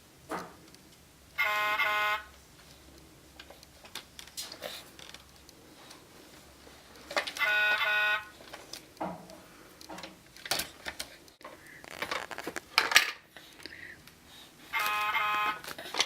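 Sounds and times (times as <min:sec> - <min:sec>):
toy electronic horn buzz: 0:01.4 - 0:02.3, 0:07.4 - 0:08.4, 0:14.7 - 0:15.7.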